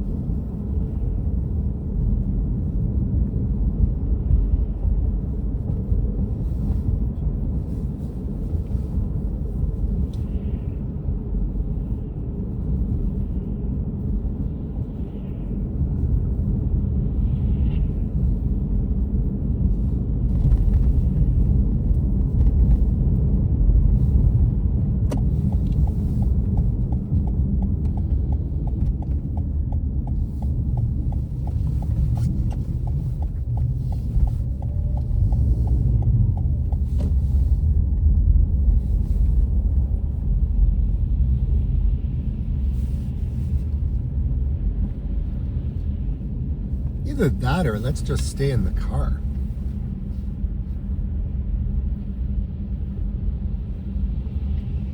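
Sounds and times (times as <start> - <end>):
car road and engine rumble: 0.0 - 54.9
turn signal ticking: 24.9 - 37.5.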